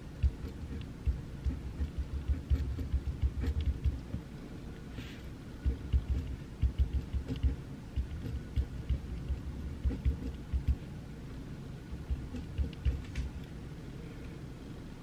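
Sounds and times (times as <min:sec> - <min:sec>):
pencil writing on paper: 0:00.2 - 0:04.1, 0:05.7 - 0:10.8.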